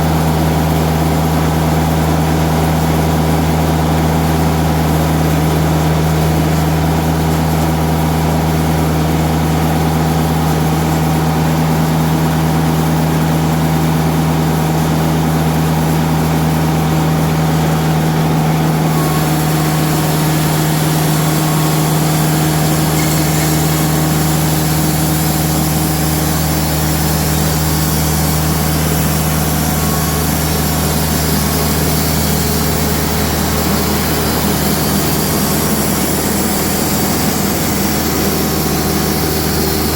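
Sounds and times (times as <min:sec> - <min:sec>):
diesel engine running: 0:13.5 - 0:39.9
high hiss: 0:18.9 - 0:39.9.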